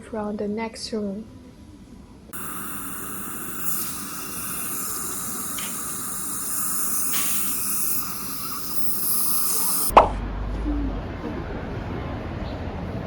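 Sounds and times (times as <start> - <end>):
faint steady whine: 2.4 - 9.9
water hissing: 2.4 - 9.9.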